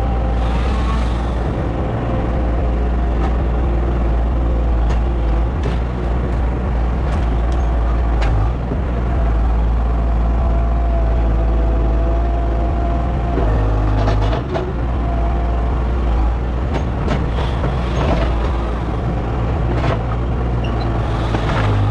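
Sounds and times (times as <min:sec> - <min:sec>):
heavy engine rumbling: 0:00.0 - 0:21.9
knocks and rattles: 0:04.8 - 0:09.0, 0:16.2 - 0:21.9.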